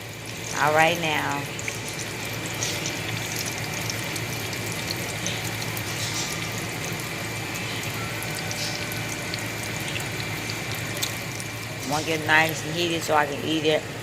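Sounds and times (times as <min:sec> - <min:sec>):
faint steady hum: 0:00.0 - 0:14.0
food sizzling in hot oil: 0:00.0 - 0:14.0.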